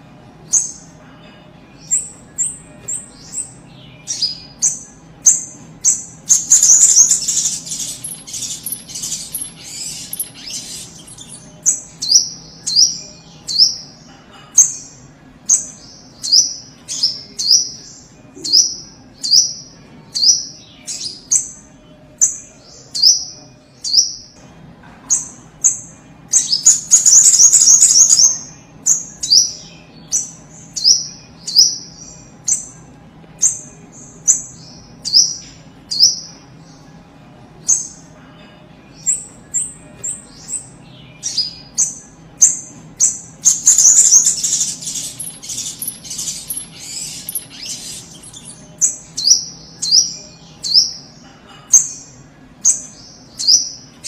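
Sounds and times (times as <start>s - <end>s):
bird chattering rapidly: 6.4s - 11.4s, 43.5s - 48.6s
bird calling sharp chips: 43.5s - 48.5s.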